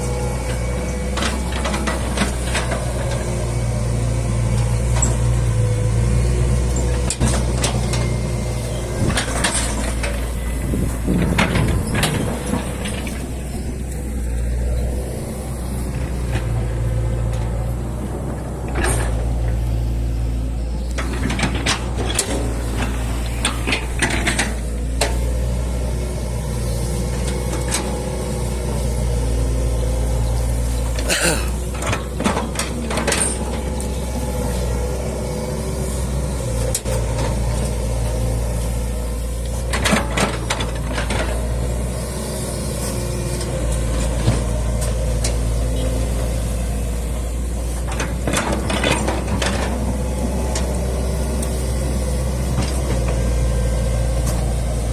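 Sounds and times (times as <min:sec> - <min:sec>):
diesel engine running under load: 0:00.0 - 0:54.9.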